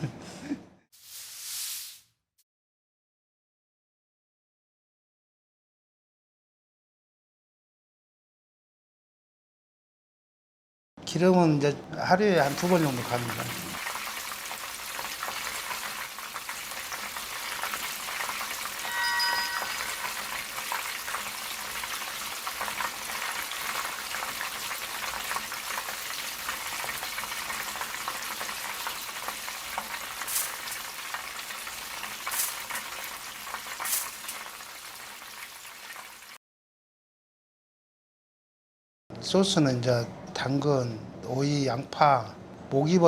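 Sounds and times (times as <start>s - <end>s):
food sizzling in hot oil: 1.0s - 2.0s, 12.4s - 36.4s
short ringing tone: 18.8s - 20.4s.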